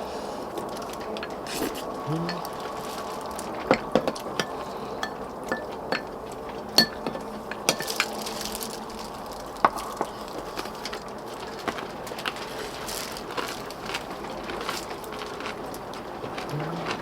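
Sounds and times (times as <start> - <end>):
spoons and chopsticks clinking bowls: 0.6 - 13.9.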